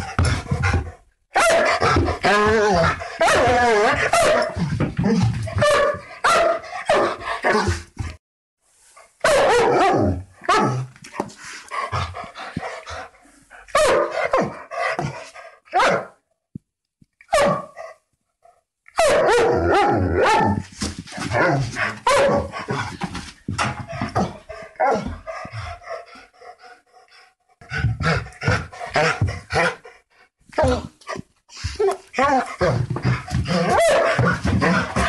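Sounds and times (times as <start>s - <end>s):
dogs barking: 1.4s - 2.2s, 3.2s - 4.6s, 5.5s - 7.7s, 9.2s - 10.7s, 13.7s - 15.0s, 15.7s - 16.2s, 17.3s - 17.8s, 19.0s - 20.6s, 22.0s - 22.6s, 33.4s - 35.0s.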